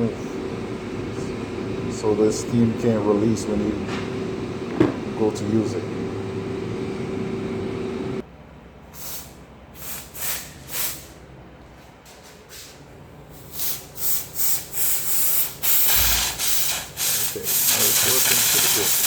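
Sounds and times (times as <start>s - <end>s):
steady hum: 0.0s - 8.8s, 15.4s - 19.0s
steam cleaner spurting steam: 9.0s - 11.1s, 13.4s - 19.0s.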